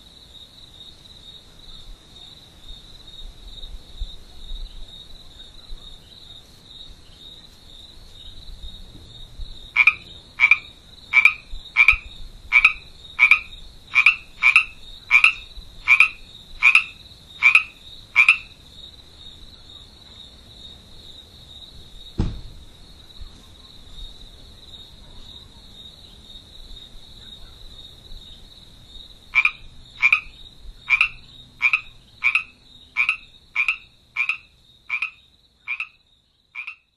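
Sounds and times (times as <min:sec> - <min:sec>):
frog croaking: 0:09.6 - 0:18.6, 0:29.3 - 0:36.9.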